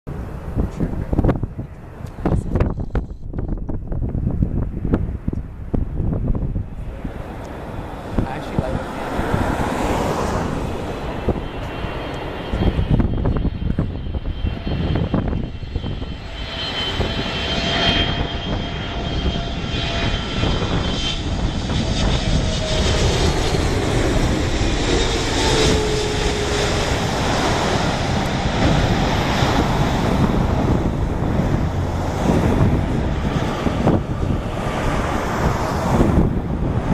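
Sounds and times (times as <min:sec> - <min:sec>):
jet engine rumble: 0:00.1 - 0:36.9.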